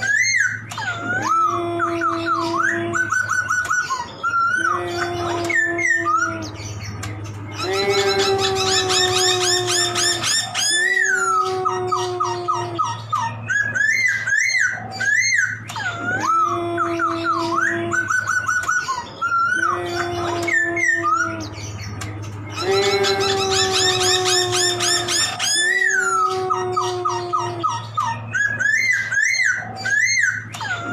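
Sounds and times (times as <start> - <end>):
laughingthrush singing: 0.0 - 30.9.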